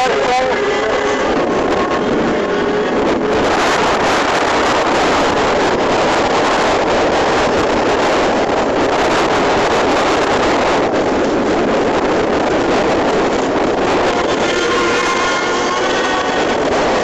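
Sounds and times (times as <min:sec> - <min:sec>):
motorboat engine: 0:00.0 - 0:17.0
water rushing: 0:00.0 - 0:17.0
wind buffeting microphone: 0:00.0 - 0:17.0.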